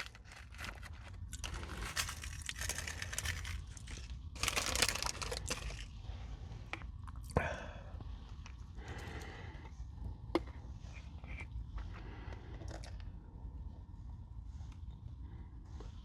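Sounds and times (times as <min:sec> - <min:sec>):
granola bar being chewed: 0:00.0 - 0:05.9.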